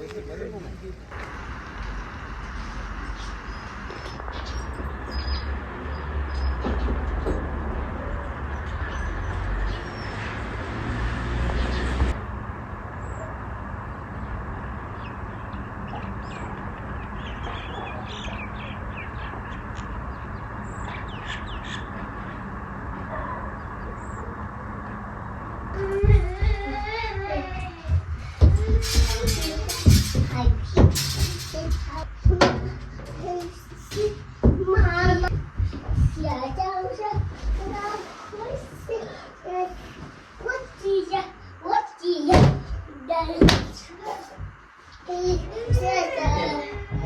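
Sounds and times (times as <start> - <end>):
birds calling: 2.5 - 39.6.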